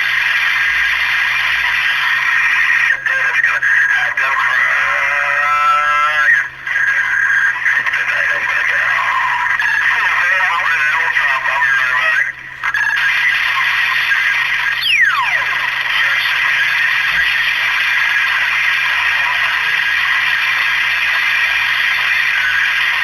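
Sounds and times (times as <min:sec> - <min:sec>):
radio static hiss: 0:00.0 - 0:23.0
falling whistle: 0:14.7 - 0:15.5.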